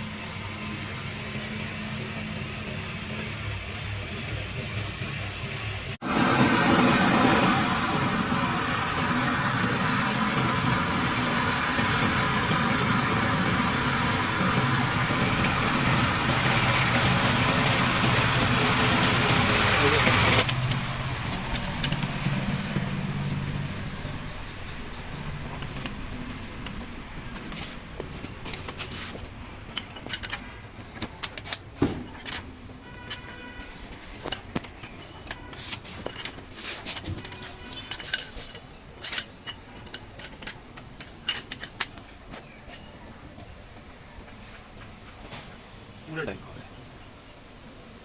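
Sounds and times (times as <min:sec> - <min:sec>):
engine droning with hiss: 0:00.0 - 0:48.0
metal tools clinking: 0:20.4 - 0:22.2, 0:28.4 - 0:42.9
metal ringing: 0:20.4 - 0:22.3, 0:29.6 - 0:42.2.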